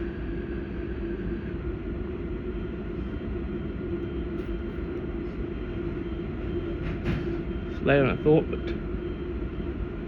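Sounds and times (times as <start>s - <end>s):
train running rumble: 0.0s - 9.0s.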